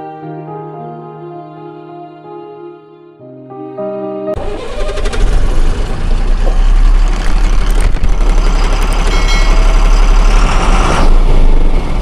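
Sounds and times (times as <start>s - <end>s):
diesel engine idling: 4.4s - 12.0s.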